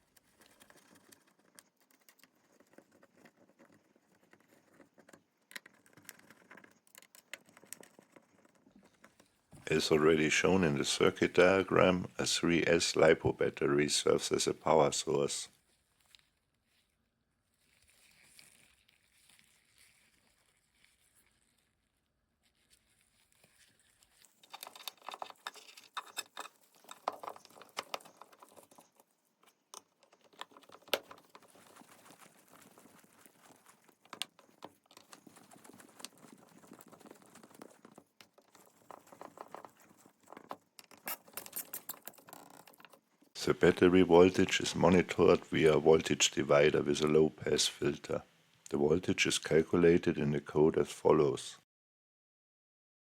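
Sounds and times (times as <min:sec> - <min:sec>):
crinkling handling noises: 0:00.0 - 0:49.4
small parts clicking: 0:24.3 - 0:31.6, 0:38.3 - 0:43.0.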